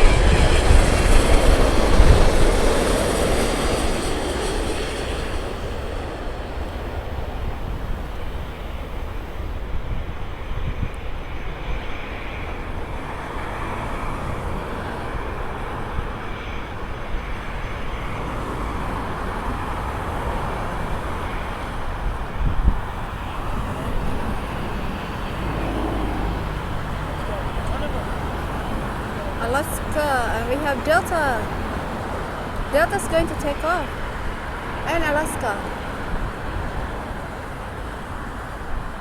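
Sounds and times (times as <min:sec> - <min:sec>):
jet engines roaring: 0:00.0 - 0:10.5, 0:11.8 - 0:39.0
wind on microphone: 0:00.0 - 0:11.5, 0:18.1 - 0:34.8.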